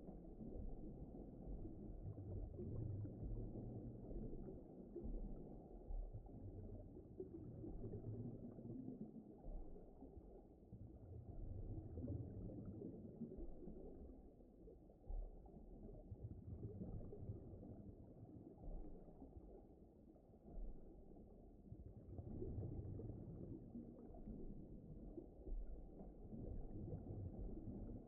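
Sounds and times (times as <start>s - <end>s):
muffled underwater ocean rumble: 0.0s - 28.0s.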